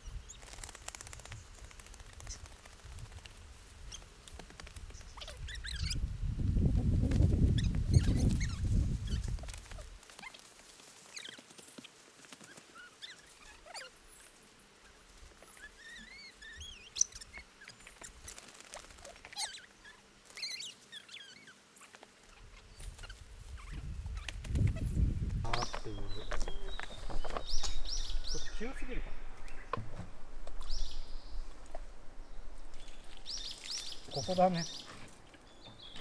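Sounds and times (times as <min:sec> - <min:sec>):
wind rumbling on microphone: 0:01.1 - 0:10.0, 0:22.4 - 0:34.1
birds chirping: 0:03.7 - 0:06.1, 0:07.1 - 0:29.8, 0:32.2 - 0:36.0.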